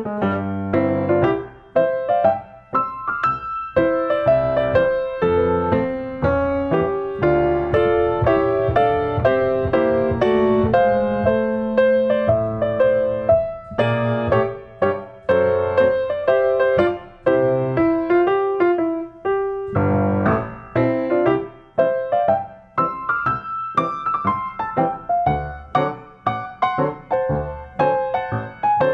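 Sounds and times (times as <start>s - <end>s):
piano music: 0.0s - 28.9s.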